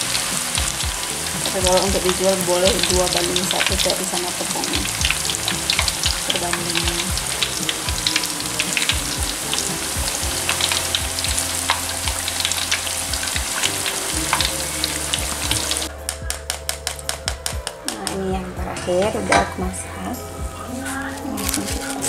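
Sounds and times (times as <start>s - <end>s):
crackers deep-frying in oil: 0.0s - 15.9s.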